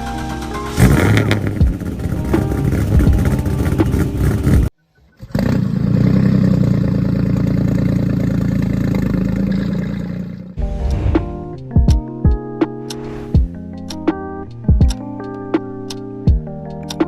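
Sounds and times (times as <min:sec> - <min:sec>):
car engine starting and idling: 0:00.0 - 0:04.7
engine sound cutting off: 0:00.0 - 0:04.7.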